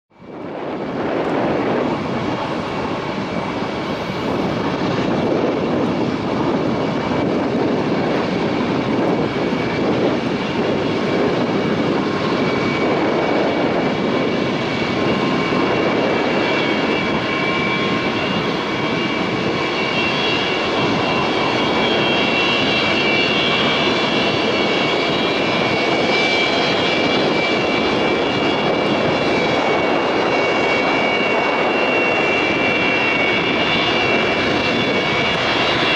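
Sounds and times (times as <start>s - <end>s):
jet engines roaring: 0.1s - 35.9s.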